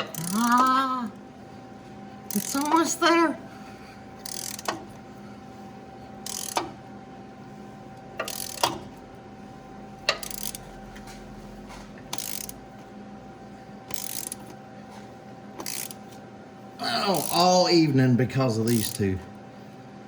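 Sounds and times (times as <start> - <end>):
socket ratchet clicking: 0.0 - 0.8, 2.3 - 2.8, 4.2 - 4.9, 6.2 - 6.7, 8.2 - 8.8, 10.1 - 10.7, 12.1 - 12.6, 13.9 - 14.6, 15.6 - 16.0, 17.2 - 17.4, 18.7 - 19.0.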